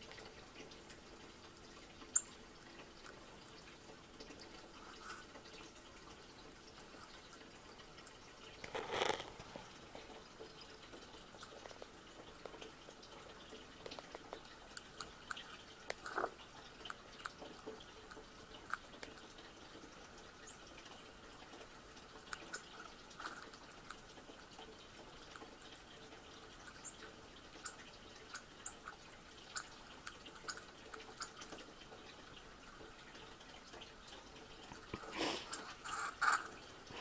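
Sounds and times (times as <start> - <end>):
small birds chirping: 2.0 - 2.4.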